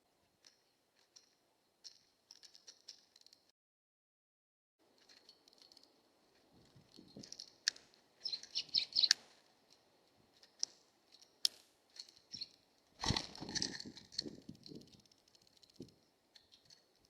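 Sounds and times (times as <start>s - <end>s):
small birds chirping: 4.9s - 17.0s
faint wind noise: 6.4s - 7.7s, 12.2s - 16.7s
sharp clicks: 6.9s - 9.8s, 10.4s - 17.0s.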